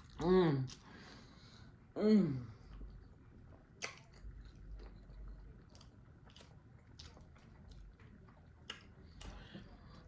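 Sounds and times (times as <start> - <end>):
chewing noodles: 2.6 - 10.0
wet mouth clicks: 3.8 - 4.2.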